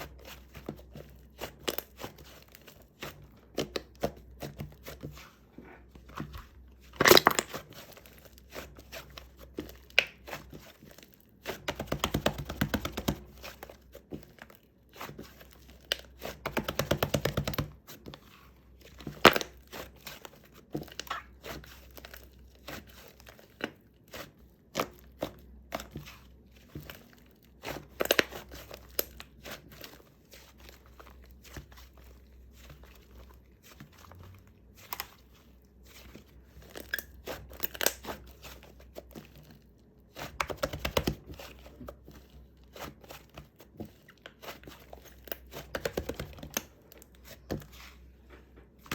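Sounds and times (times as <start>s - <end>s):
slime crackling and popping: 7.0s - 7.6s.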